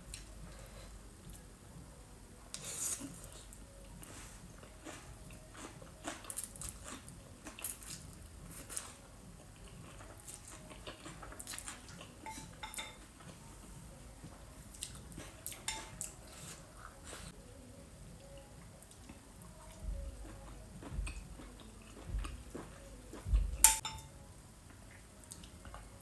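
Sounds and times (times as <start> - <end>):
biting and chewing: 4.6 - 12.6.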